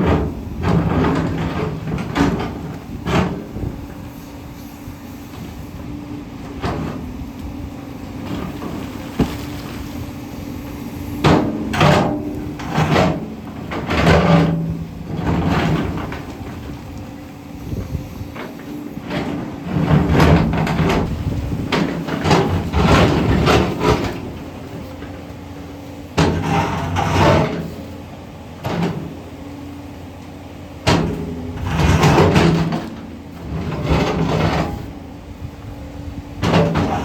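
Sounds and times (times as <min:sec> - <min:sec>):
diesel engine running: 0:00.0 - 0:37.0
bucket scraping on rock: 0:08.3 - 0:10.1, 0:26.2 - 0:27.8, 0:31.6 - 0:34.9, 0:36.4 - 0:37.0.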